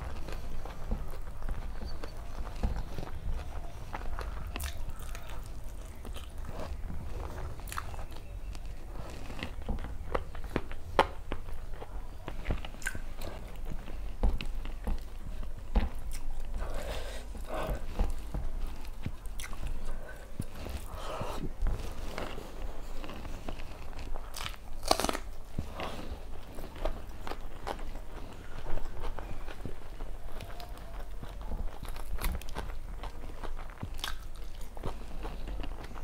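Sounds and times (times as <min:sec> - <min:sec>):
person chewing food: 0:00.0 - 0:36.0
wet mouth clicks and smacks: 0:12.8 - 0:13.0.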